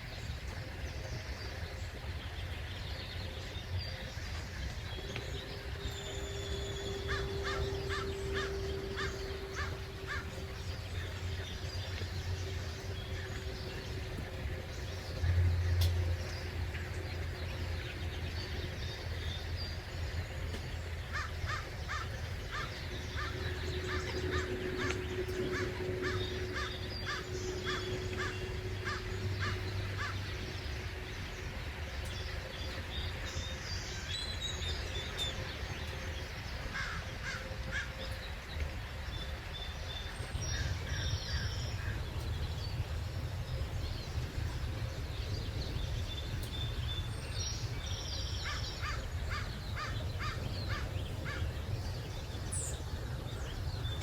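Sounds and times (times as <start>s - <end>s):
low steady rumble: 0.0s - 54.0s
harsh bird calls: 3.4s - 16.6s, 20.6s - 38.2s, 47.5s - 54.0s.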